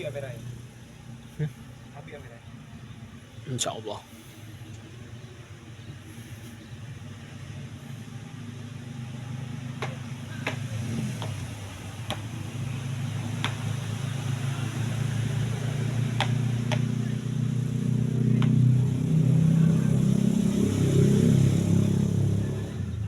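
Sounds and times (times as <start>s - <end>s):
vehicle engine hum: 0.0s - 23.0s
sharp short knocks: 9.8s - 12.4s, 13.4s - 13.7s, 16.1s - 17.0s.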